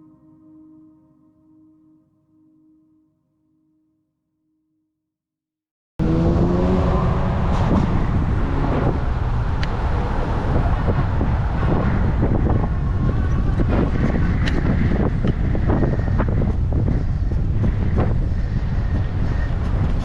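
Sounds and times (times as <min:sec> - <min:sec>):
passing road traffic: 0:06.0 - 0:20.0
wind rumbling on microphone: 0:06.0 - 0:20.0.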